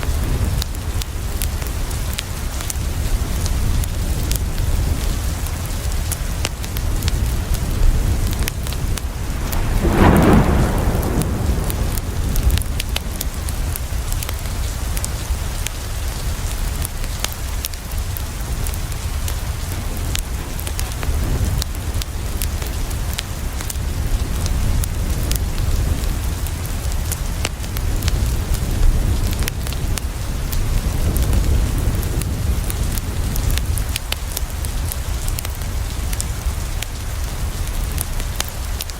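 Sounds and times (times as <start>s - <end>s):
rain on a window: 0.0s - 38.9s
thunder rumble: 7.1s - 15.4s.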